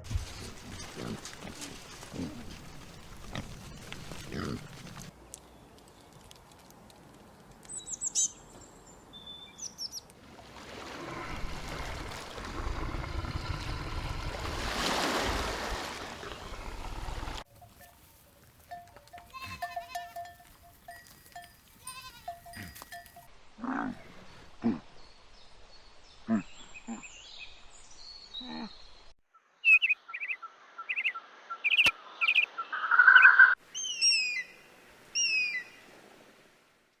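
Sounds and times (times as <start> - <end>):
bird chirps: 7.7 - 10.0, 29.6 - 34.5
goats or sheep bleating: 19.1 - 20.4, 21.8 - 22.9.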